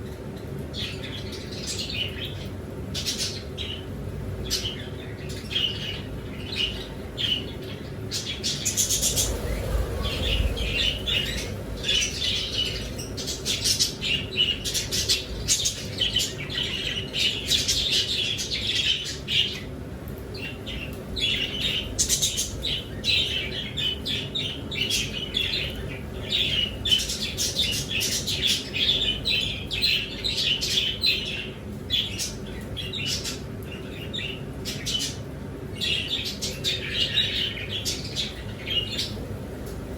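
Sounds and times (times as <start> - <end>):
pet birds chirping: 0.0 - 39.3
low rumble: 8.4 - 14.3.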